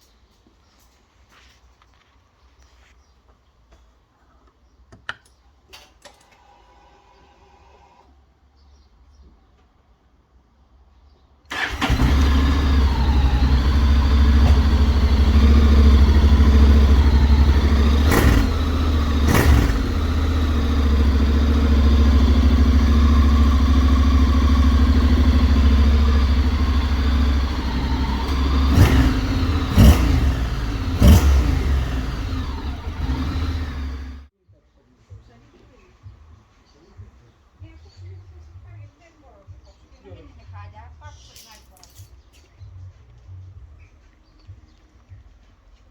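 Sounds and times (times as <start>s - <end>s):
exhaust cracks: 11.5s - 34.3s
motorcycle engine running: 11.5s - 34.3s.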